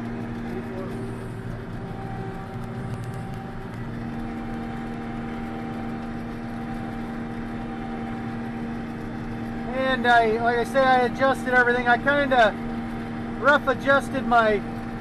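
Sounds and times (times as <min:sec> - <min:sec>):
combine harvester drone: 0:00.0 - 0:15.0
steady machine whine: 0:00.0 - 0:15.0.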